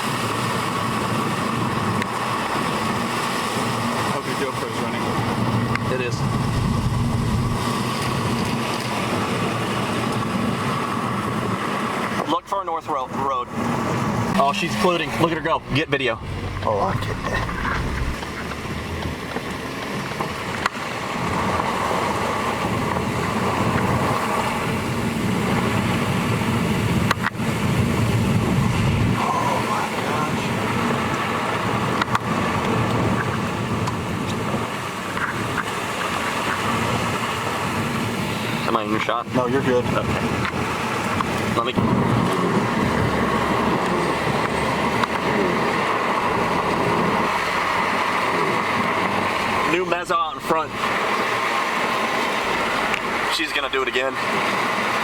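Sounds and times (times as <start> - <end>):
strong wind on microphone: 5.0 - 11.9, 13.6 - 38.7.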